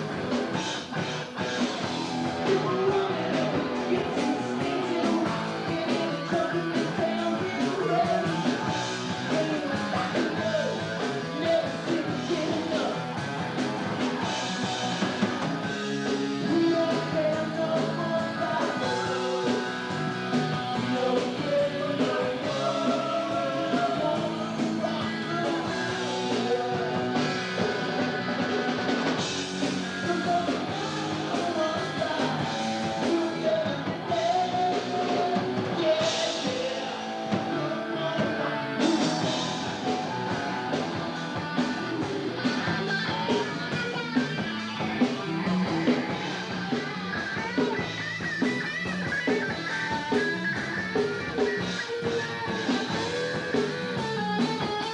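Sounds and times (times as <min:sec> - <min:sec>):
rock band music: 0:00.0 - 0:54.9
person singing: 0:02.2 - 0:13.2, 0:16.2 - 0:28.8, 0:29.6 - 0:44.3.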